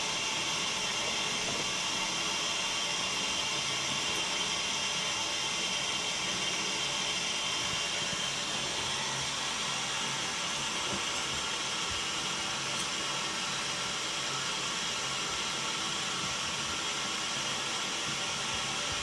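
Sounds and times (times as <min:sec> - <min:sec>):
water hissing into boiler: 0:00.0 - 0:19.0.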